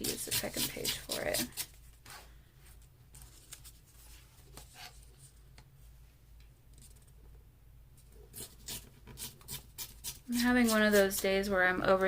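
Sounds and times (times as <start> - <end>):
paper rustling: 1.8 - 5.4.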